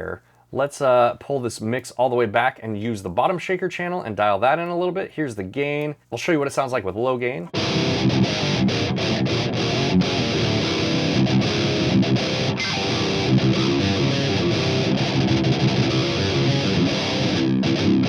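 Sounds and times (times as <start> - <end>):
distorted electric guitar riff: 7.5 - 18.0.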